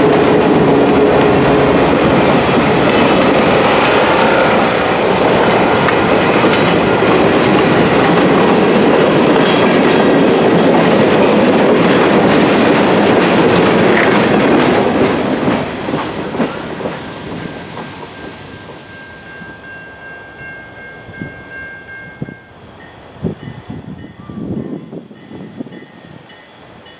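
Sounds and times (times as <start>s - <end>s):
train wheels clicking on rails: 0.0s - 19.6s.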